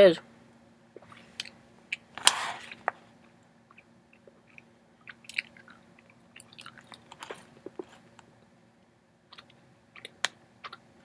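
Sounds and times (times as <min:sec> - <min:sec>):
wet mouth clicks and smacks: 0:03.7 - 0:07.9
person chewing candy: 0:03.7 - 0:08.0, 0:09.3 - 0:10.9.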